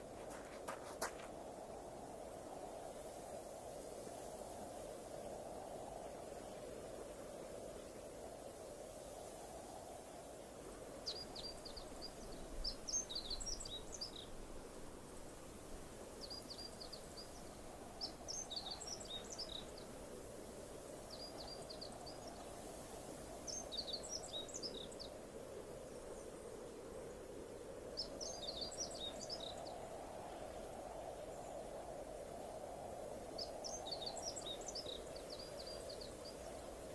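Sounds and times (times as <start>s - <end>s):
songbird singing: 0.0s - 1.3s, 11.0s - 14.9s, 16.2s - 25.2s, 25.8s - 32.0s, 33.1s - 36.9s.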